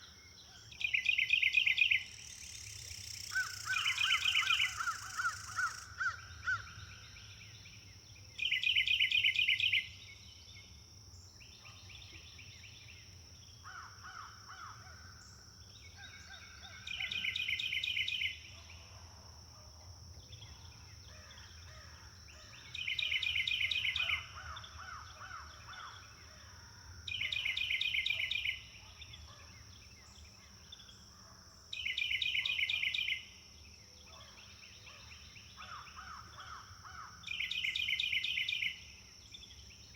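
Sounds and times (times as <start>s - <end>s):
quieter trilled bird calls: 0.0s - 10.2s, 20.4s - 26.5s, 34.1s - 39.6s.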